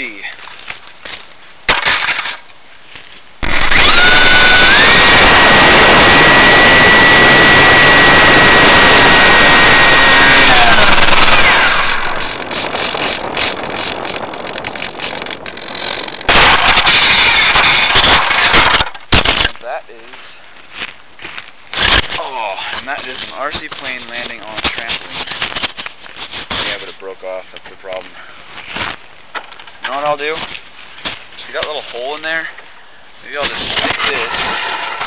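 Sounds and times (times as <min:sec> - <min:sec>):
electric motor and propeller whine: 0:03.4 - 0:19.0
wind noise: 0:03.4 - 0:32.5.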